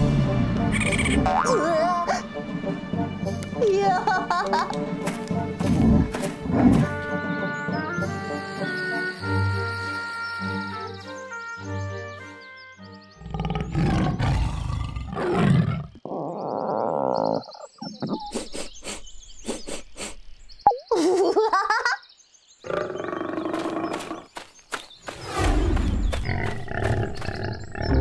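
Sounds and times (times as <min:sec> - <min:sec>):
tiger roar: 0:13.2 - 0:17.5.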